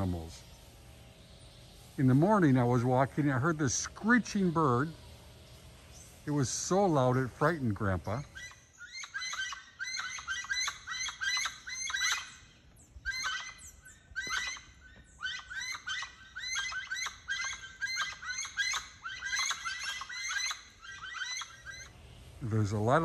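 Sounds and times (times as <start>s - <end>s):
bird screeching: 8.0s - 23.0s.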